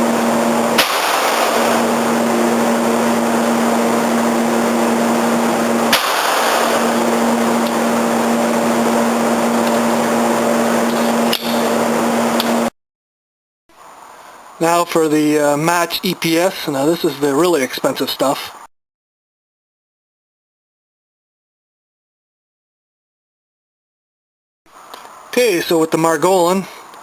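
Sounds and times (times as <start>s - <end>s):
steady hiss and hum: 0.0s - 12.7s, 13.7s - 18.7s, 24.7s - 27.0s
pistol shots: 0.8s - 1.8s, 5.9s - 6.9s.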